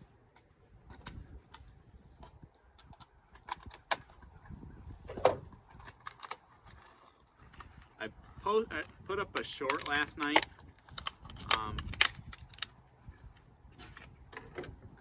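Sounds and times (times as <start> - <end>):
clicks and knocks of handling: 0.3 - 4.4, 5.1 - 7.9, 8.8 - 13.0.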